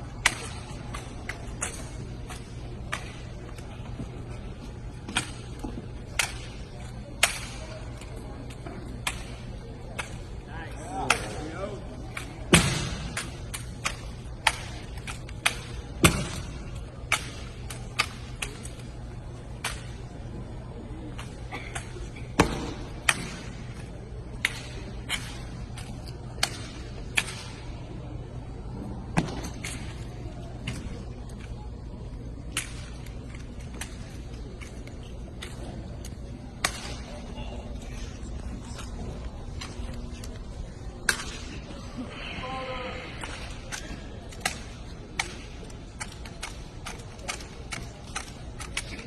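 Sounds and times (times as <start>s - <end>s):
steady low hum: 0.0s - 49.0s
drill rifle clacks and slaps: 45.2s - 49.0s.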